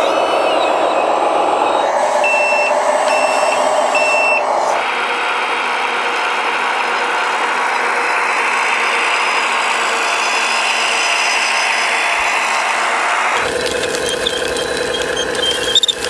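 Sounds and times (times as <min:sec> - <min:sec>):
high reversing beeps: 0:00.0 - 0:04.8
mechanical whir: 0:00.0 - 0:16.0
model motors whirring: 0:00.0 - 0:16.0.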